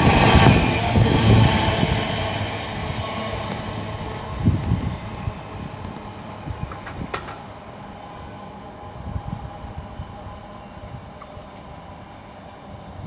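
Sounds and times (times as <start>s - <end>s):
freight wagons rolling on rails: 2.8s - 13.0s.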